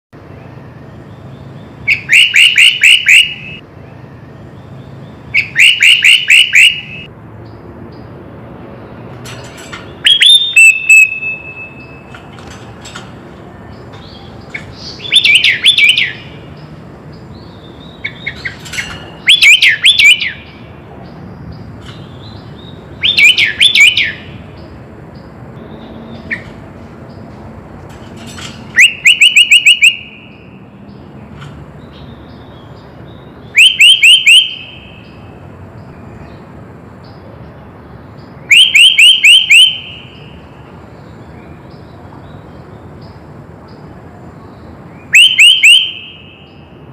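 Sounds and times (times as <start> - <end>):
bulbul singing: 0.2 - 8.2, 8.9 - 46.9.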